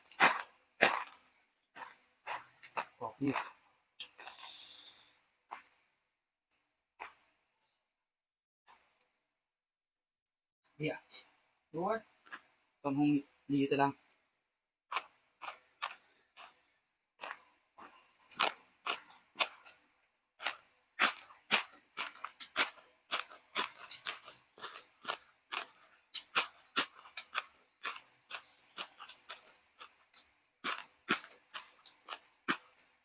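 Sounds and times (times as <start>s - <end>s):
crunchy food chewing: 0.0s - 5.8s, 7.0s - 7.3s, 12.0s - 12.6s, 14.9s - 33.0s.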